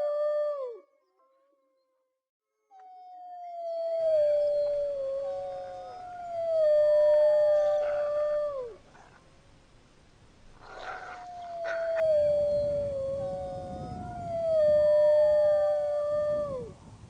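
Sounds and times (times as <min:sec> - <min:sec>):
dog howling: 0:03.4 - 0:09.2, 0:10.6 - 0:16.8.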